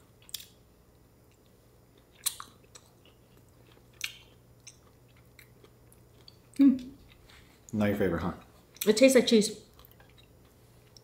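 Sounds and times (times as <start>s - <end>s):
person chewing food: 0.1s - 7.8s, 9.7s - 11.0s
wet mouth clicks and smacks: 2.2s - 2.9s.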